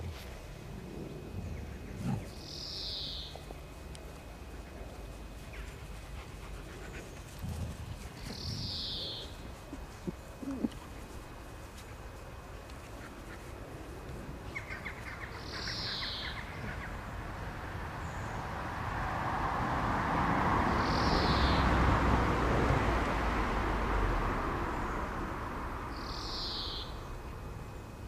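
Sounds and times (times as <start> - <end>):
bird calling: 8.2 - 11.0, 14.5 - 17.0.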